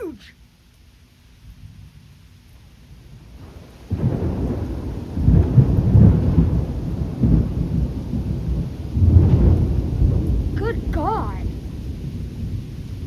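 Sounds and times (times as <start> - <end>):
thunder rumbling: 3.5 - 13.0
thunder crack: 3.9 - 12.6.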